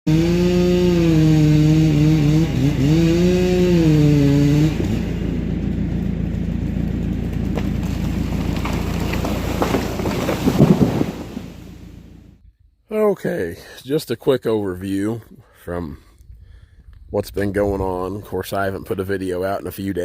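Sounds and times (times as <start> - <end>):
engine revving: 0.1 - 12.4.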